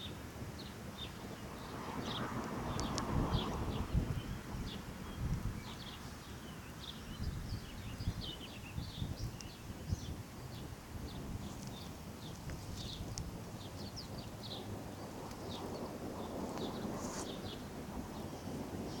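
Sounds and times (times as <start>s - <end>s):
small birds chirping: 0.0s - 19.0s
low uneven rumble: 1.0s - 19.0s.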